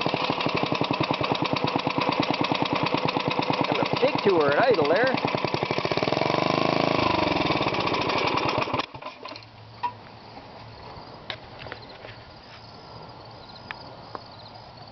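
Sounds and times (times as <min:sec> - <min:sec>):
small engine idling: 0:00.0 - 0:10.0.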